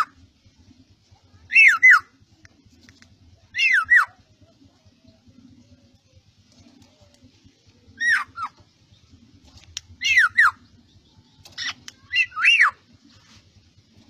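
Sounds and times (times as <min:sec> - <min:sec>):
bird calling harsh notes: 0:01.4 - 0:02.2, 0:03.4 - 0:04.3, 0:07.9 - 0:08.8, 0:09.9 - 0:10.8, 0:11.4 - 0:12.9.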